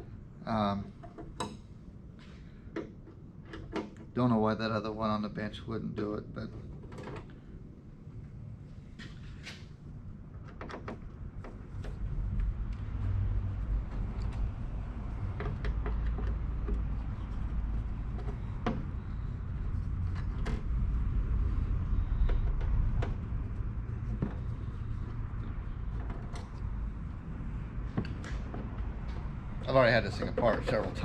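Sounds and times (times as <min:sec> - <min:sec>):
steady low rumble: 0:11.0 - 0:31.0.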